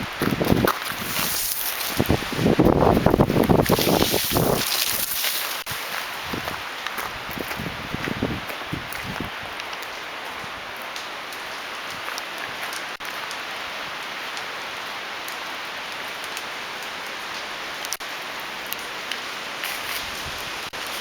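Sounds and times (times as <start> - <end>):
storm wind rushing through trees: 0.0 - 10.8.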